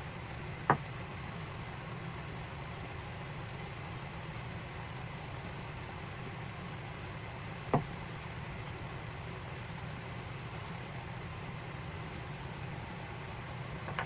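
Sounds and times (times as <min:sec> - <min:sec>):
low motor hum: 0:00.0 - 0:14.0.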